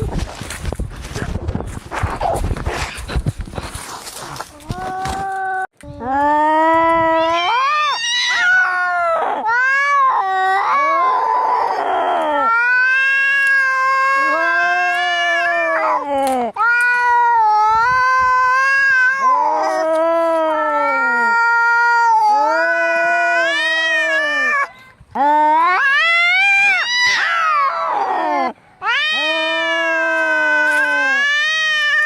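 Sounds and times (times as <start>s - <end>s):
cats caterwauling: 6.8s - 32.0s
cat harsh raspy cry: 7.2s - 11.8s, 20.6s - 24.7s, 25.6s - 32.0s.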